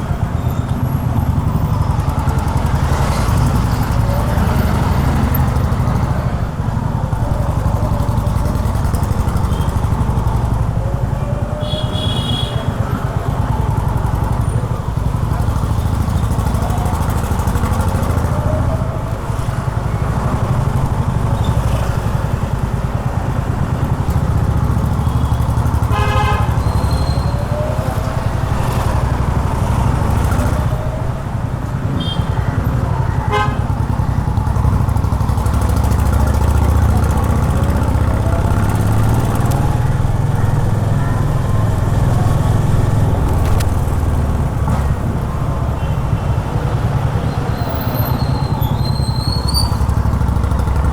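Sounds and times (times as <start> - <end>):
city traffic: 0.0 - 50.9
motorcycle engine running: 0.1 - 50.9
vehicle horn: 11.6 - 12.8, 25.2 - 27.0, 33.2 - 33.9.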